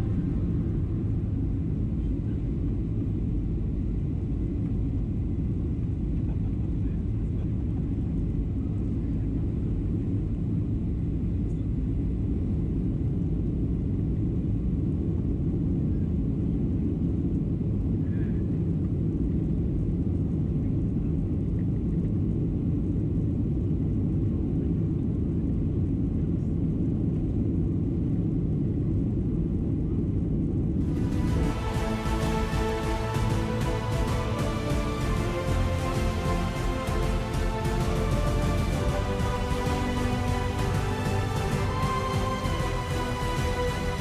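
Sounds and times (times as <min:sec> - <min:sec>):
aircraft cabin engine rumble: 0:00.0 - 0:31.0.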